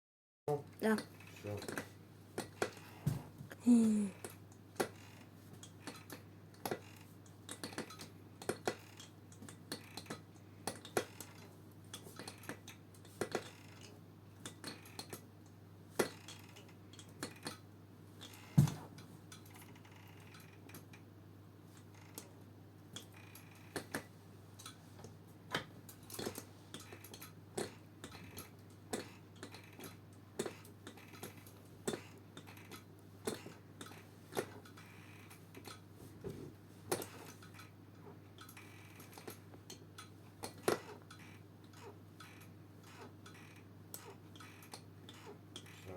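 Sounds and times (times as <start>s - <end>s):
office chair creaking and clicking: 0.9s - 3.4s, 4.2s - 15.3s, 16.0s - 17.6s, 18.2s - 21.0s, 21.7s - 22.4s, 23.0s - 45.9s
chair knock: 18.6s - 18.9s.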